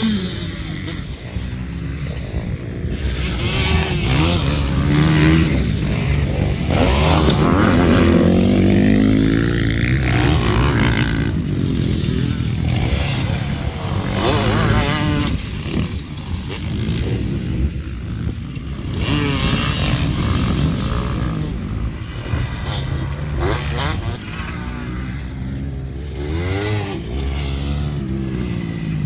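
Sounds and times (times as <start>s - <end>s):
motocross bikes revving: 0.0s - 29.0s.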